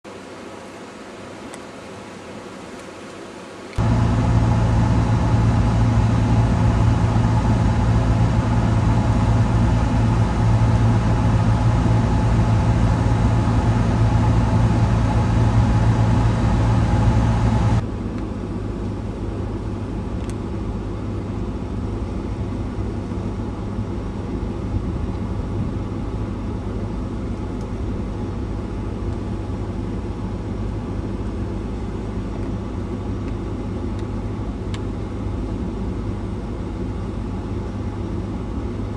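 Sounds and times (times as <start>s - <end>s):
engine idling: 3.8s - 17.8s.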